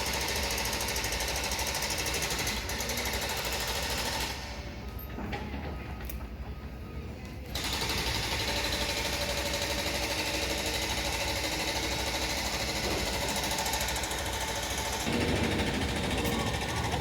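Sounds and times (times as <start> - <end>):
machinery hammering rapidly: 7.6 - 17.0.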